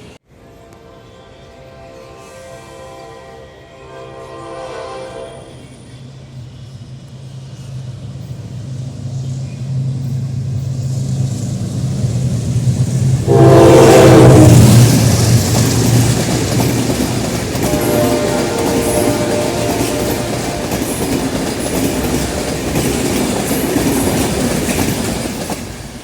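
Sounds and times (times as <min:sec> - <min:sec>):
diesel locomotive engine drone: 0:00.0 - 0:26.0
train horn blast: 0:00.3 - 0:05.6, 0:13.2 - 0:14.9, 0:17.6 - 0:21.2.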